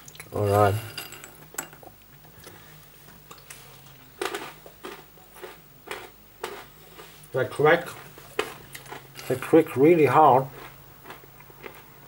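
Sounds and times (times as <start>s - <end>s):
person crunching peanuts: 4.2s - 7.2s, 7.8s - 9.5s, 10.4s - 11.9s.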